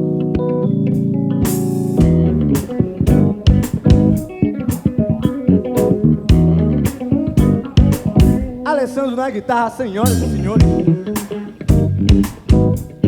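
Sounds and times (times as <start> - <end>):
bass guitar: 0.0 - 8.7, 10.0 - 13.0
electric guitar solo: 0.0 - 13.0
drum hits: 1.5 - 4.3, 5.8 - 8.6, 10.6 - 13.0.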